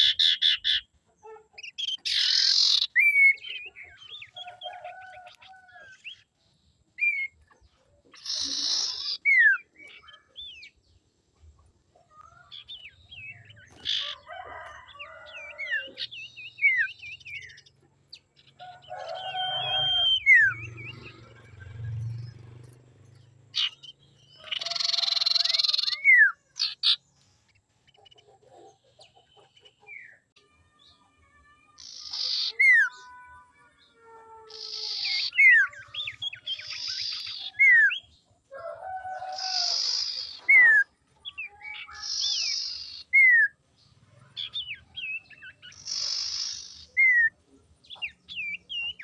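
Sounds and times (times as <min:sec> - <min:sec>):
harsh rasping bird chatter: 0:00.0 - 0:06.4, 0:07.0 - 0:30.2, 0:31.7 - 0:33.3, 0:34.5 - 0:38.2, 0:39.2 - 0:49.0
bird whistles and trills: 0:01.5 - 0:04.7, 0:08.1 - 0:10.8, 0:19.1 - 0:21.8, 0:34.6 - 0:38.1, 0:39.4 - 0:43.5.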